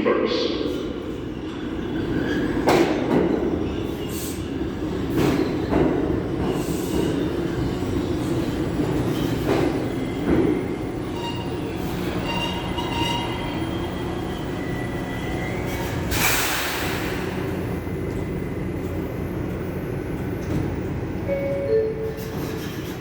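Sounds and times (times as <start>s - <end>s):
subway train rumbling: 0.0s - 23.0s.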